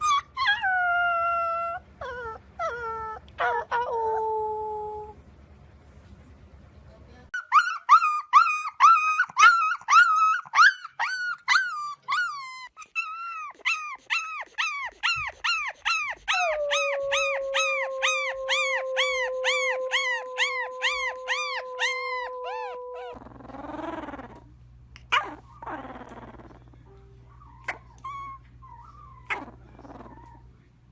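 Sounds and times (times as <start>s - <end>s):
puppy howling and yipping: 0.0s - 5.1s, 7.4s - 24.4s.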